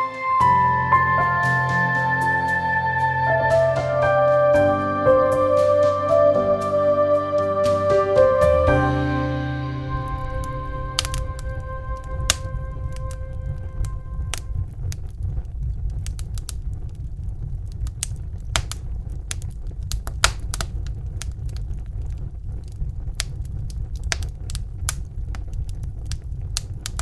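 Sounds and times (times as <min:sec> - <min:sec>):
low fire rumble: 0:00.0 - 0:27.0
fire crackling and popping: 0:09.8 - 0:27.0.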